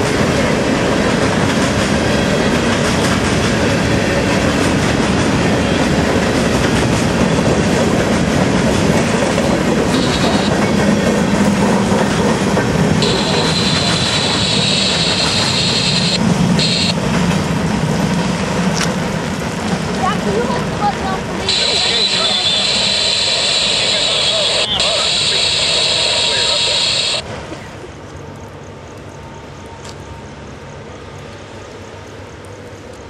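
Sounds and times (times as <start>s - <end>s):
train wheels clattering on rails: 0.0s - 21.8s
high train squeal: 1.9s - 6.6s, 9.6s - 17.0s, 21.4s - 27.2s.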